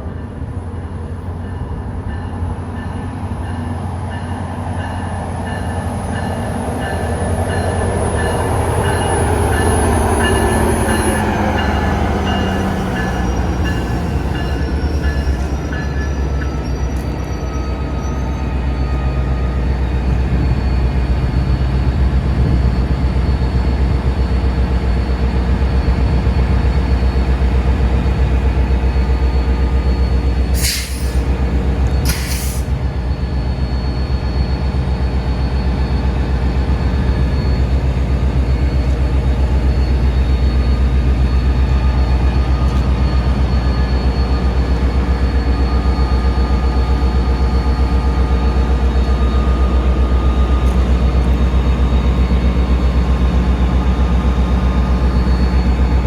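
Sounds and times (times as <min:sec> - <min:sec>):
train running with low hum: 0:00.0 - 0:56.0
short hisses: 0:30.6 - 0:31.2.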